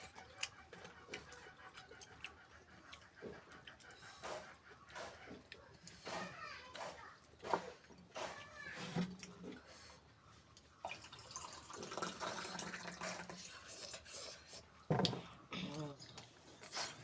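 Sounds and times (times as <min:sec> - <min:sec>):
person chewing food: 0:00.0 - 0:11.9, 0:13.0 - 0:17.0.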